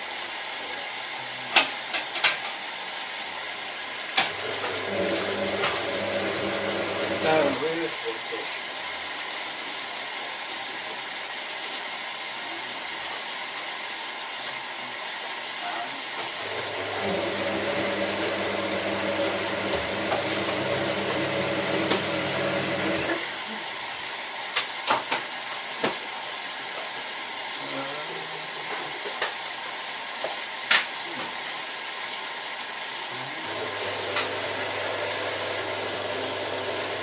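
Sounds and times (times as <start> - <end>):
washing machine hiss: 0.0 - 37.0
washing machine motor humming: 3.8 - 8.3, 16.3 - 23.5, 33.2 - 37.0.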